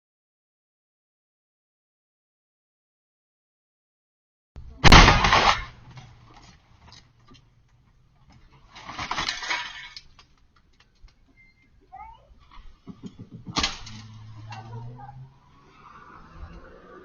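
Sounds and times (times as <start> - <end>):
vehicle crash: 4.8 - 7.4, 8.7 - 10.3, 12.8 - 17.0
clattering debris: 4.8 - 11.2, 12.4 - 14.8.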